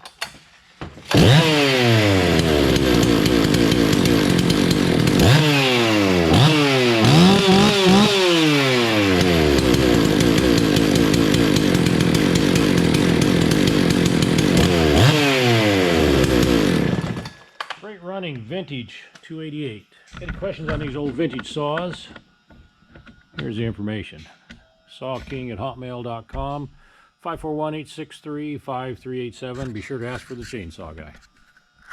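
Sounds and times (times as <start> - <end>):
chainsaw revving: 1.0 - 17.5.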